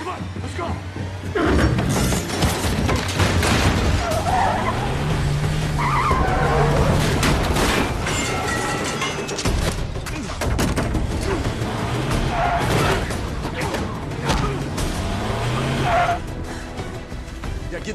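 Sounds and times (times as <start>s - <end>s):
tyres skidding: 0.0s - 9.3s, 11.0s - 17.1s
car engines revving loud: 3.8s - 7.7s, 11.0s - 16.3s.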